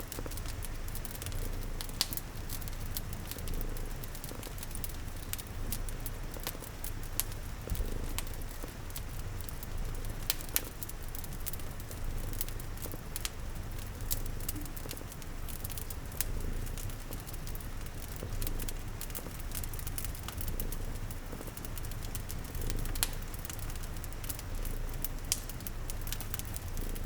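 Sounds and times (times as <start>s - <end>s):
fire crackling with pops: 0.0s - 27.0s
soft rain patter: 0.0s - 27.0s
cat purring: 0.1s - 27.0s.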